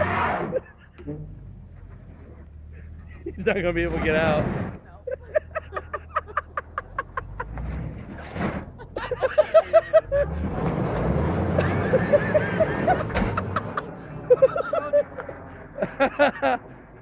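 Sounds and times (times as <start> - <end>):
people laughing: 0.0 - 1.5, 2.2 - 7.8, 8.6 - 17.0
car engine revving hard: 9.8 - 13.8.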